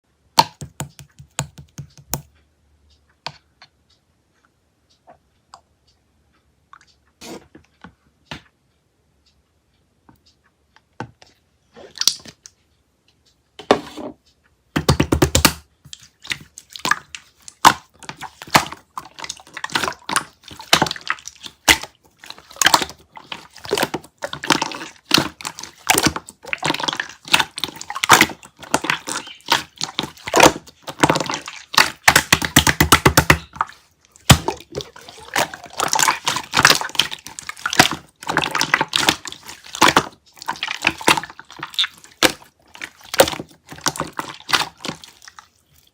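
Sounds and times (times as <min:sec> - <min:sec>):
jelly squelching and crackling: 0:14.9 - 0:45.9.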